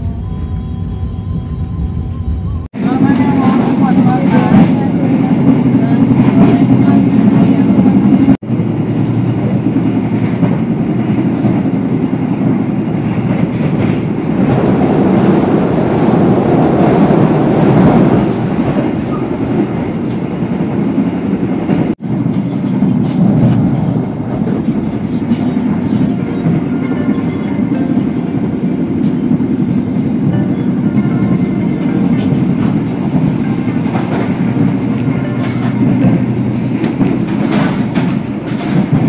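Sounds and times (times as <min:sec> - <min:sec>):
train coach low rumble: 0:00.0 - 0:39.0
wheels clicking over rails: 0:30.3 - 0:39.0.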